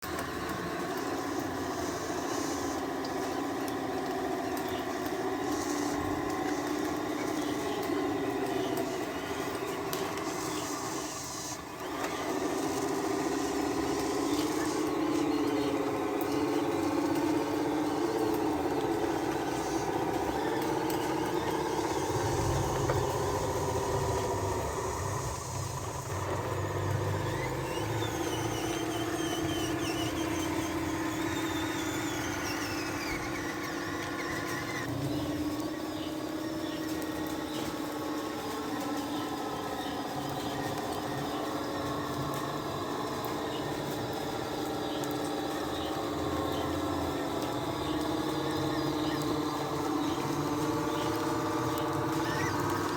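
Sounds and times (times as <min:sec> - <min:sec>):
toy truck electric motors whining: 0:00.0 - 0:52.9.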